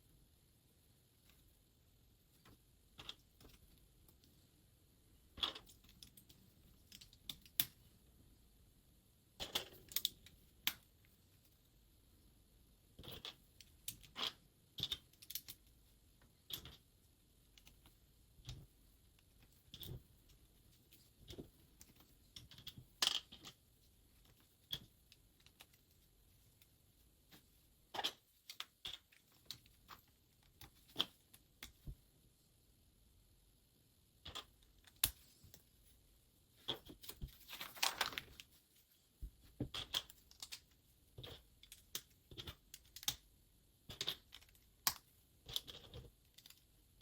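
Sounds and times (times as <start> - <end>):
plastic bricks clicking together: 13.0 - 15.7, 43.9 - 46.7.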